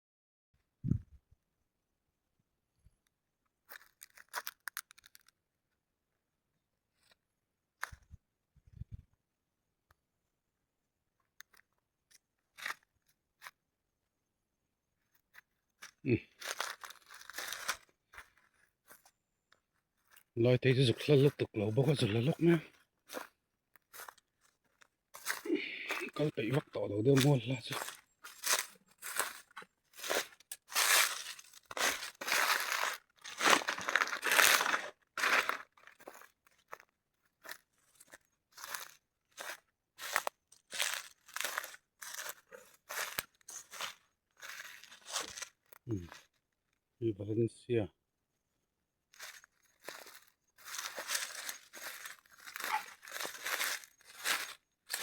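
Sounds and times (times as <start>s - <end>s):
crunching and crinkling: 3.6s - 5.4s, 11.4s - 13.6s, 15.1s - 46.8s, 49.1s - 55.0s.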